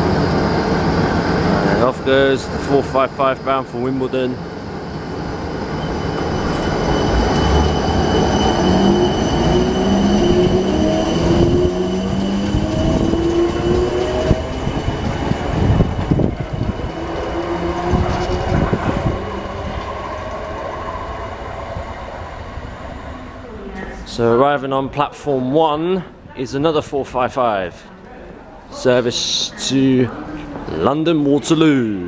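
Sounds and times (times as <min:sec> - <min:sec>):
electric train motors whining: 0:00.0 - 0:23.6
wheels clacking over rail joints: 0:10.0 - 0:21.6.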